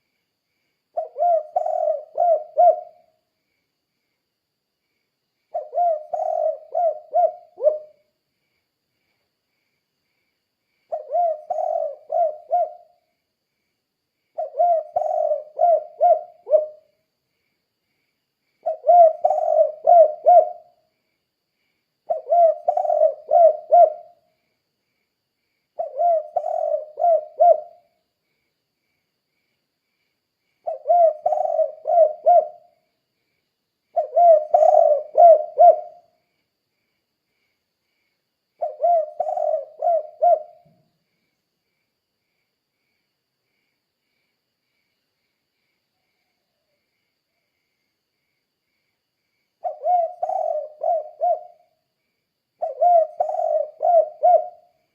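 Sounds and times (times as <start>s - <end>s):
dove cooing: 1.0s - 3.1s, 5.5s - 8.0s, 10.9s - 13.0s, 14.4s - 16.9s, 18.6s - 20.7s, 22.1s - 24.2s, 25.8s - 27.9s, 30.6s - 32.7s, 33.9s - 36.1s, 38.6s - 40.8s, 49.6s - 51.8s, 52.6s - 54.7s.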